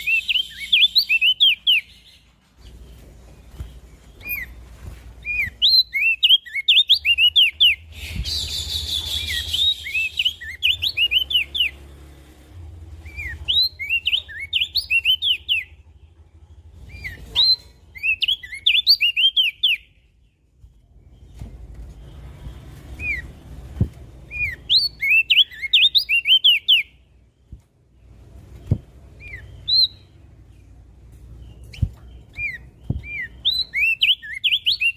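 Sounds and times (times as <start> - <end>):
bird singing whistled chirps: 0.0 - 2.2, 5.2 - 11.8, 13.0 - 15.7, 16.9 - 20.0, 24.3 - 27.0, 29.2 - 30.2, 31.4 - 34.9.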